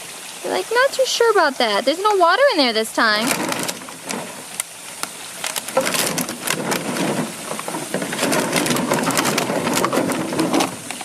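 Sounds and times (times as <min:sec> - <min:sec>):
plastic bottles clattering: 0:03.1 - 0:11.0.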